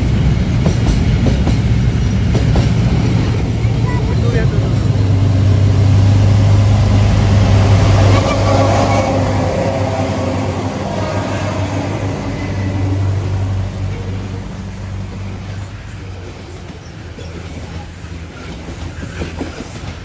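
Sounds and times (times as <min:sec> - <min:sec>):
train wheels clicking: 0:00.0 - 0:08.0, 0:11.9 - 0:20.0
freight train drone: 0:00.0 - 0:20.0.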